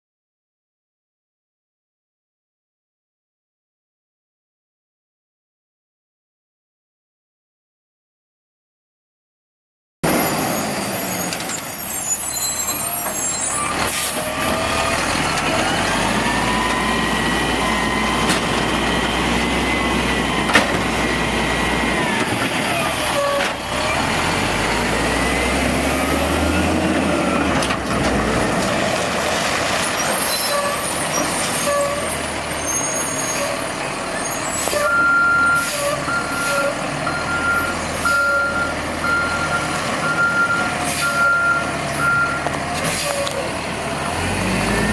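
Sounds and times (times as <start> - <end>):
garbage truck engine revving: 10.0 - 44.9
reversing alarm beeping: 34.1 - 42.5.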